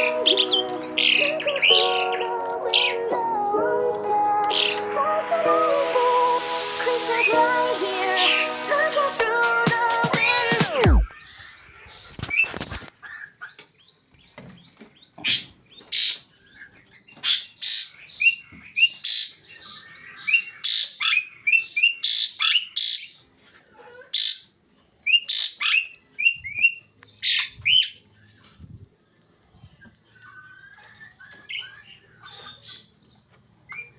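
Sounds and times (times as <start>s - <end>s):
starlings squawking and chirping: 0.0s - 3.2s, 4.5s - 5.0s, 10.2s - 23.2s, 25.1s - 28.0s, 30.0s - 33.1s.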